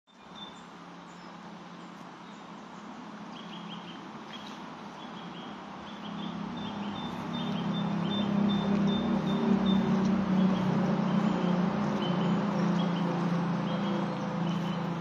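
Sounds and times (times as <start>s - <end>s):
small birds singing: 0.1s - 15.0s
low hum: 3.9s - 15.0s.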